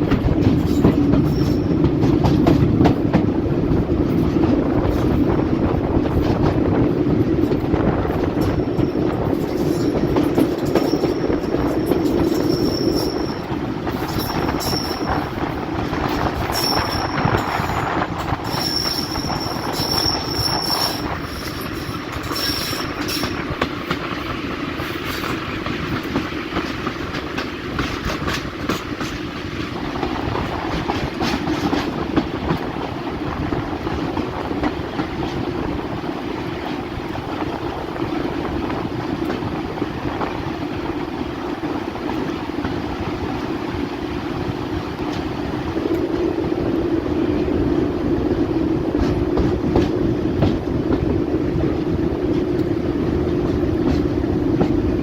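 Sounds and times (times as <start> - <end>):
diesel train engine drone: 0.0 - 55.0
high wheel squeals: 10.8 - 15.5, 16.4 - 23.6.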